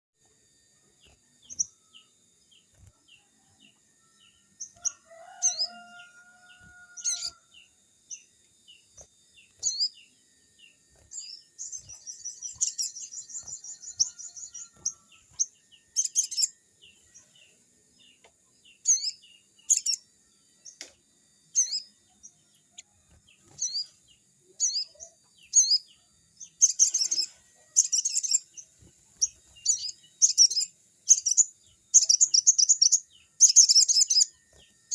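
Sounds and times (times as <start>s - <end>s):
harsh bird chatter: 4.6s - 7.6s, 11.1s - 17.4s, 26.6s - 34.2s.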